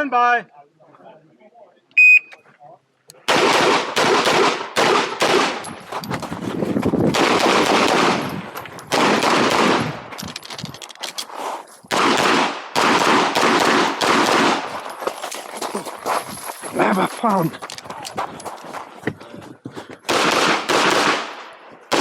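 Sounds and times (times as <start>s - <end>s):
rapid pistol shots: 3.3s - 5.6s, 7.1s - 8.3s, 8.9s - 10.1s, 11.9s - 14.7s, 20.1s - 22.0s.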